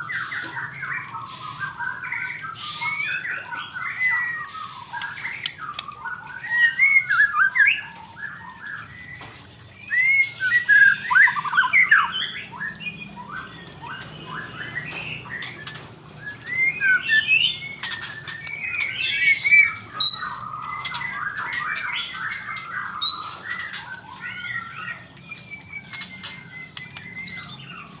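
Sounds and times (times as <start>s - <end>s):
songbird singing varied phrases: 9.9s - 28.0s.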